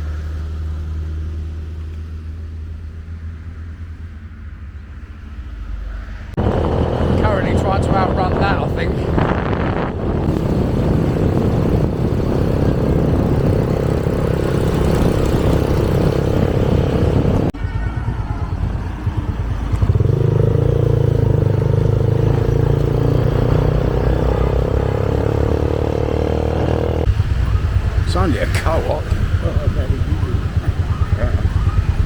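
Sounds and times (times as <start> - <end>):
steady engine hum: 0.0 - 32.0
wind and road noise: 0.0 - 32.0
motorbike engine running: 6.4 - 32.0.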